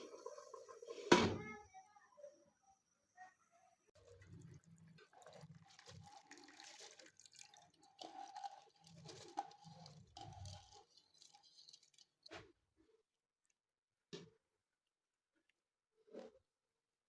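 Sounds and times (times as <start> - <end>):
liquid dripping in a cooking pot: 4.0 - 12.4.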